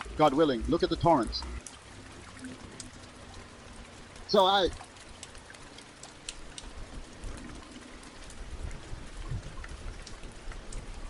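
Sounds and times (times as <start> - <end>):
rain falling: 0.0 - 11.0
raindrops ticking: 0.0 - 11.0.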